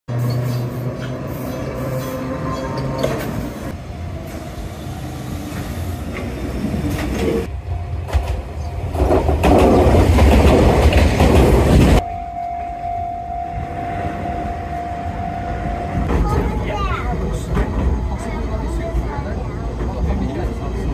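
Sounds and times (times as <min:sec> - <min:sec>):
train rumbling past: 0:00.1 - 0:20.9
wheels clacking over rail joints: 0:05.5 - 0:12.0
steady high-pitched tone: 0:12.0 - 0:16.9.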